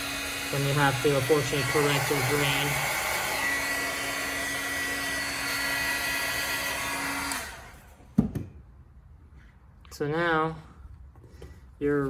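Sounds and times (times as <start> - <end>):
heat gun blowing with whine: 0.0 - 8.1.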